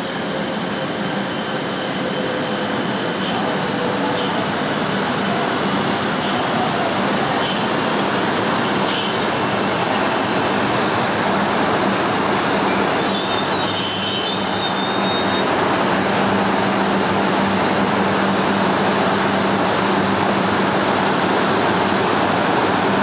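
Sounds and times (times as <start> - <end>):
high train squeal: 0.0 - 11.4, 12.4 - 16.6
train rolling rush: 0.0 - 23.0.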